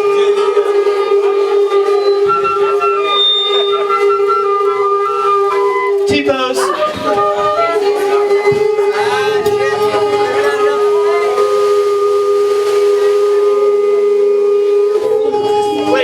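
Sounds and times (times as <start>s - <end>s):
faint wavering tones: 6.6s - 16.0s
low sliding note: 6.6s - 16.0s
steady drone tone: 6.6s - 16.0s.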